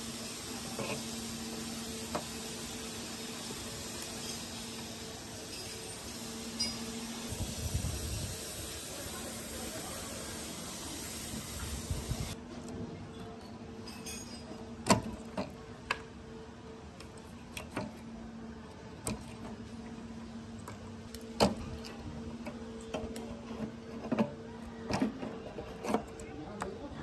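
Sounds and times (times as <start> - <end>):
aerosol spray hiss: 0.0 - 12.4.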